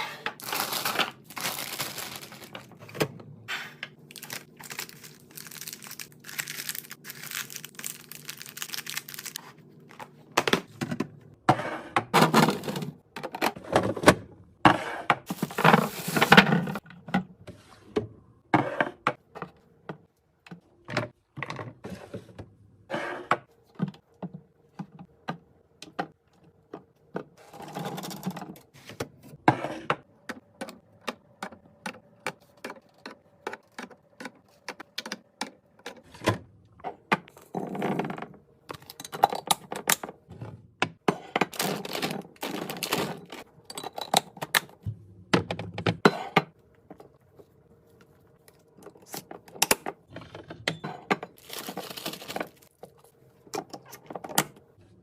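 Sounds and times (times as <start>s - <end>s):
packaging rustling: 0.4s - 2.8s, 4.1s - 9.5s, 51.4s - 52.9s.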